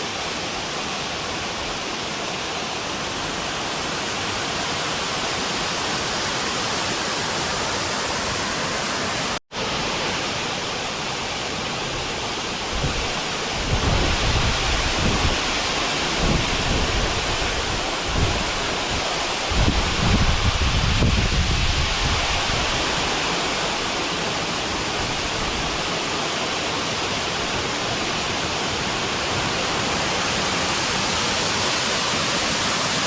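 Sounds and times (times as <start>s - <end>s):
waterfall hissing: 0.0s - 33.0s
wind buffeting microphone: 12.7s - 23.0s.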